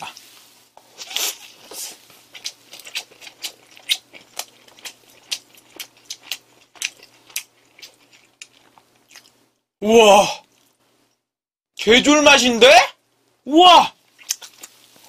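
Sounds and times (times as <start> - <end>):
person chewing bread: 0.8 - 9.6, 10.4 - 11.2, 14.0 - 15.0
wet mouth clicks and smacks: 14.2 - 14.8.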